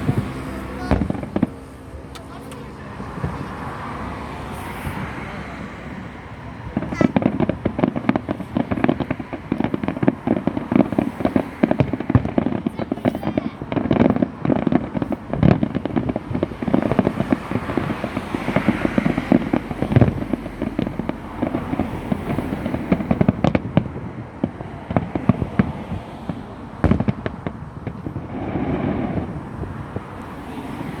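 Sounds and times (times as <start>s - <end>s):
fireworks booms: 0.0s - 31.0s
fireworks crackling: 0.0s - 31.0s.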